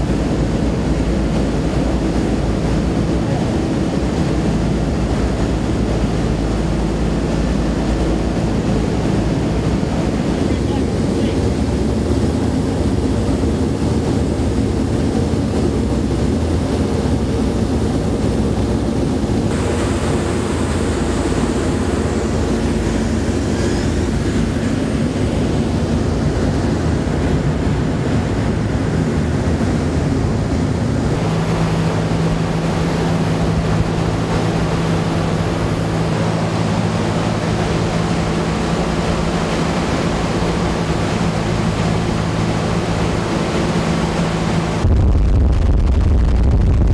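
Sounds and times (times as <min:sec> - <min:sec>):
aircraft engines droning: 0:00.0 - 0:46.9
steady low hum: 0:00.0 - 0:46.9.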